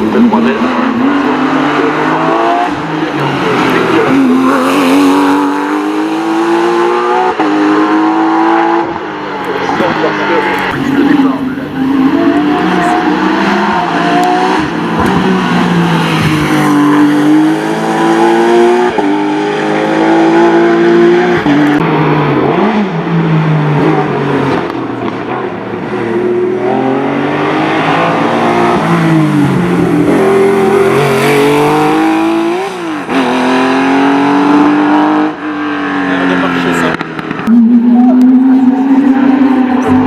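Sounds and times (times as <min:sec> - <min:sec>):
race car engine shifting gears: 0:00.3 - 0:23.0.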